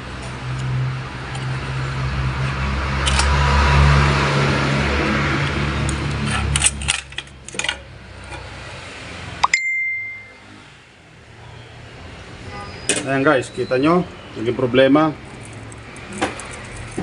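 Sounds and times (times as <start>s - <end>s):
metal parts clinking: 6.3s - 8.4s
short ringing ding: 9.4s - 10.5s.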